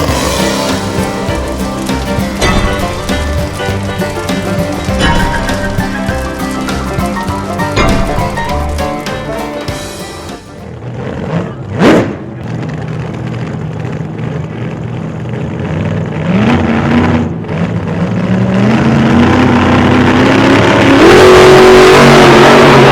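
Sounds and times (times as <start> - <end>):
pickup truck engine accelerating: 0.0 - 22.9.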